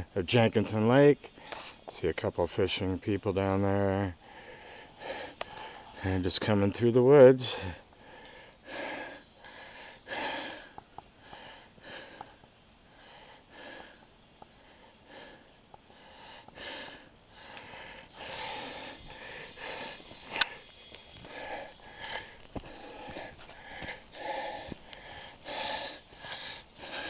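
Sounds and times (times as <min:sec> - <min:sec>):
heavy breathing: 0:04.2 - 0:06.2, 0:07.4 - 0:27.0.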